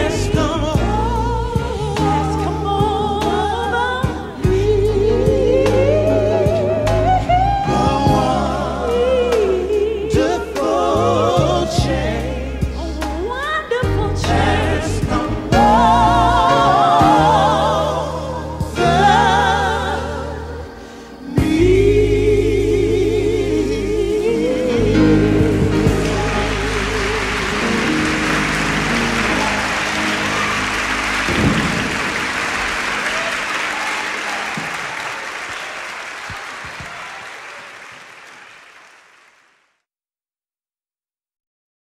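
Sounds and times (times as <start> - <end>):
sustained low bass notes: 21.4 - 32.9
audience applauding: 25.8 - 39.8.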